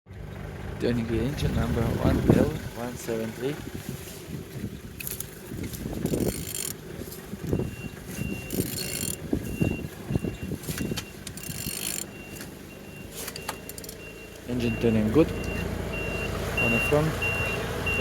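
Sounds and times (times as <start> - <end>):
engine clattering as turned by hand: 0.1 - 18.0
reversing alarm beeping: 7.4 - 18.0.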